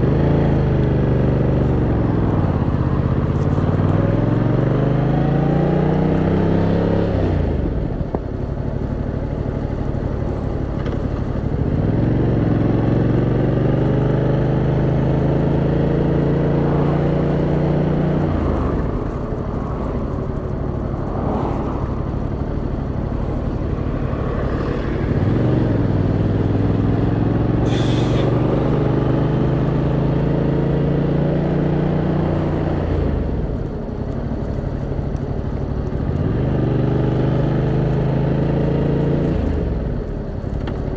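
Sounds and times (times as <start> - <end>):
motorcycle engine in traffic: 0.0 - 40.9
brief hiss: 27.6 - 28.3.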